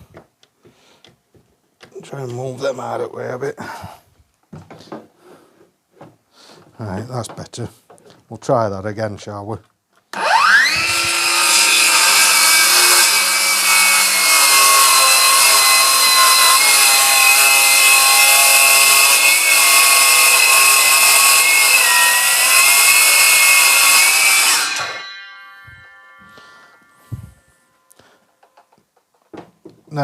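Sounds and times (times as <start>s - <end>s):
circular saw cutting wood: 10.1s - 28.4s.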